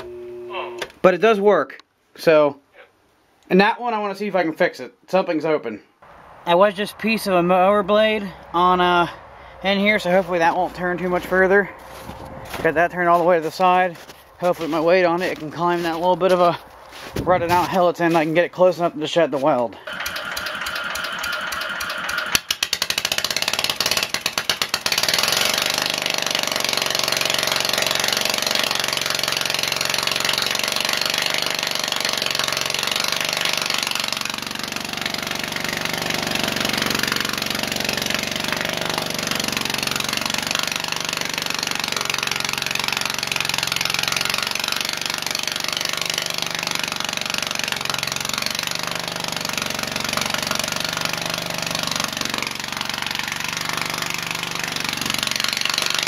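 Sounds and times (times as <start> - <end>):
garden tractor engine running: 6.1 - 56.0.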